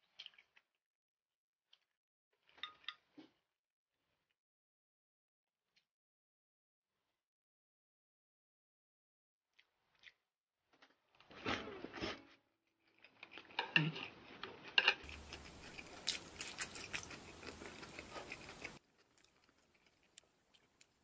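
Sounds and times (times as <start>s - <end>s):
person chewing crunchy food: 0.0s - 0.8s, 12.9s - 21.0s.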